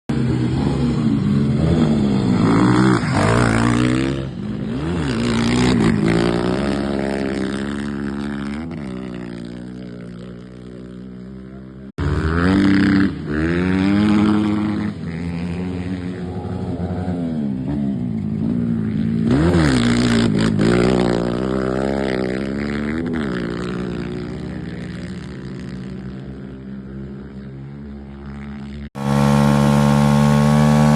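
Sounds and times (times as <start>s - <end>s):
motocross motorcycle engines revving: 0.1s - 30.9s.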